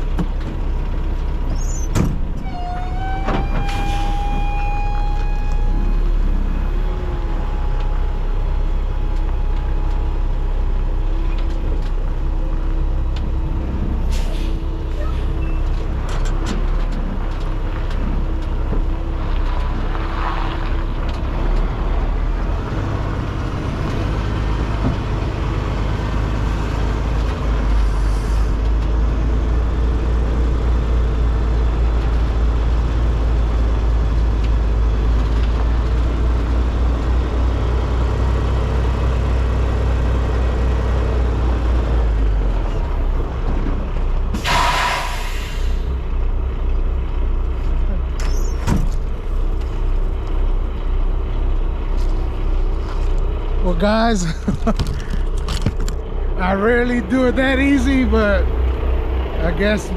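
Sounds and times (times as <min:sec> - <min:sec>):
diesel truck engine idling: 0:00.0 - 0:19.2, 0:20.9 - 0:59.9
air hiss: 0:44.4 - 0:45.9.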